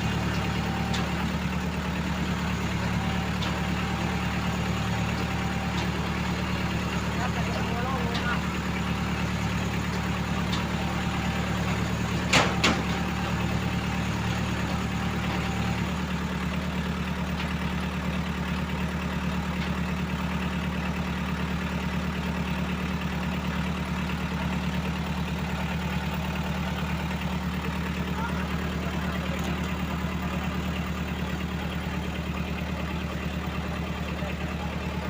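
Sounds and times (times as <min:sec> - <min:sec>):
vehicle engine idling: 0:00.0 - 0:35.0.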